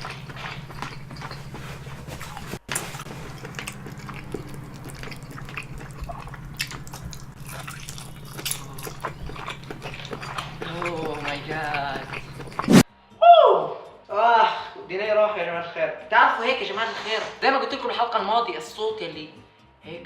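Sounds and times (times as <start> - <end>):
wet chewing sounds: 0.0 - 12.9.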